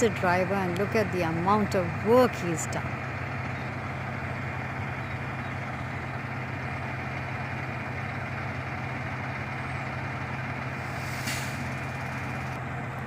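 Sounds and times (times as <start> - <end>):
truck engine idling: 0.0 - 13.0
brief air hiss: 10.8 - 11.6.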